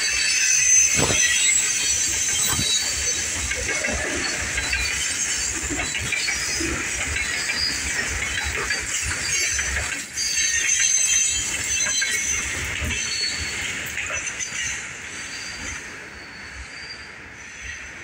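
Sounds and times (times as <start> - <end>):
wheel squeal: 0.0 - 17.7
train wheels rumbling on rail: 0.0 - 18.0.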